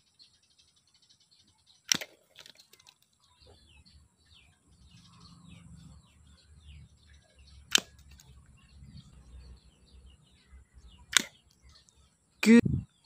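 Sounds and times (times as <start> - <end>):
birds chirping: 0.0 - 13.0
toy bow snap: 1.9 - 2.2, 7.7 - 8.0, 11.1 - 11.4.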